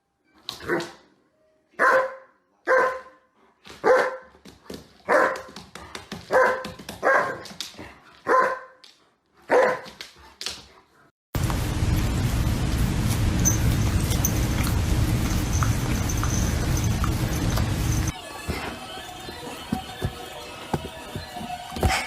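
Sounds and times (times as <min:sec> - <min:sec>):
dog barking: 0:01.8 - 0:04.3, 0:05.1 - 0:05.6, 0:06.3 - 0:07.5, 0:08.2 - 0:08.8, 0:09.4 - 0:09.9
steady hiss: 0:11.4 - 0:18.1.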